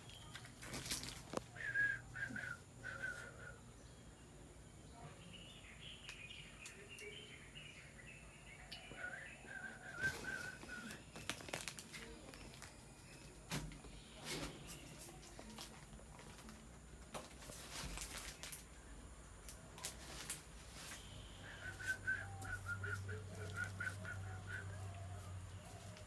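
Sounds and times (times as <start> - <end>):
birds chirping: 0.0 - 15.5, 20.8 - 26.0.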